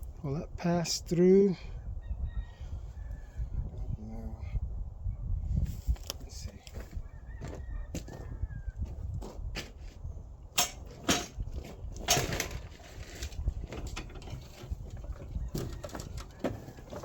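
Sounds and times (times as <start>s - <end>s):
metal knocks and clunks: 10.6s - 17.0s.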